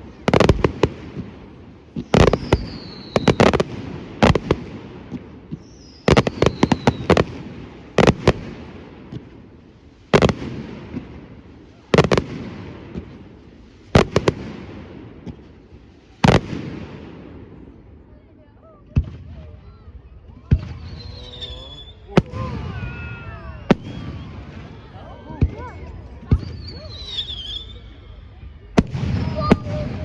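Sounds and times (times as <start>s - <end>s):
fireworks bangs: 0.0s - 18.0s, 20.3s - 30.0s
falling firework whistle: 2.1s - 3.7s, 5.6s - 7.2s, 19.6s - 24.9s, 26.3s - 30.0s.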